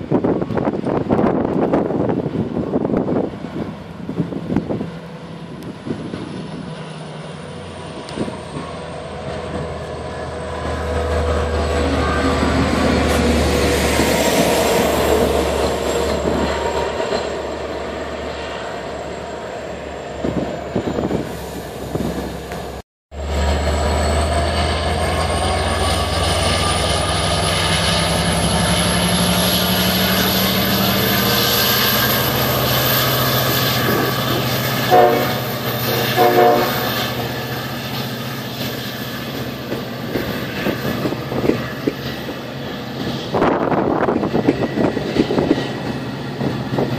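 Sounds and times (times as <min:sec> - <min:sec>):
diesel train engine drone: 0:00.0 - 0:46.9
rail noise: 0:00.0 - 0:46.9
train horn blasts: 0:34.8 - 0:37.2.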